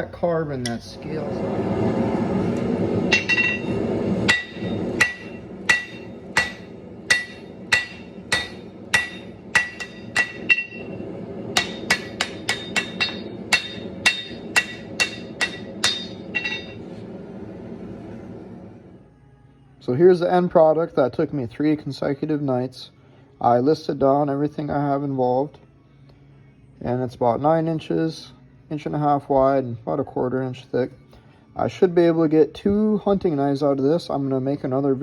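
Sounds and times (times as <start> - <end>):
hammer ringing on anvil: 3.1 - 11.0, 11.6 - 16.8.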